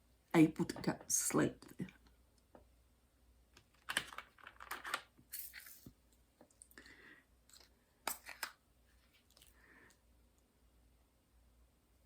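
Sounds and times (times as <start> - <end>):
small objects rustling: 3.7 - 6.7.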